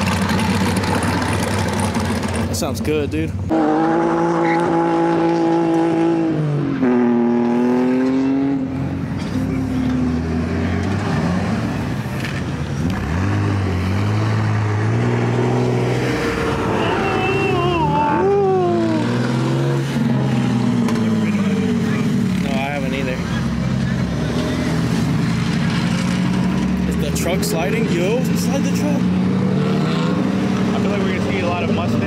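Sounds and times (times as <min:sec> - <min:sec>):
car engines revving: 0:00.0 - 0:32.0
high wavering squeal: 0:16.5 - 0:18.8.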